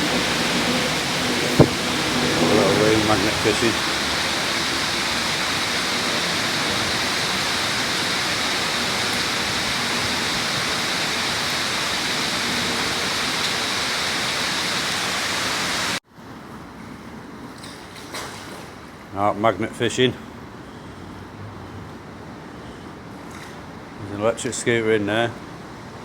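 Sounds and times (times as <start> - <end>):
rushing water hiss: 0.0 - 16.0.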